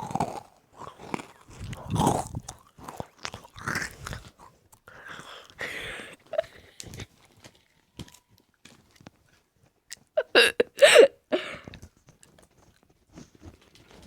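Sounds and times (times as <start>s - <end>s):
person chewing something crunchy: 0.0s - 5.6s.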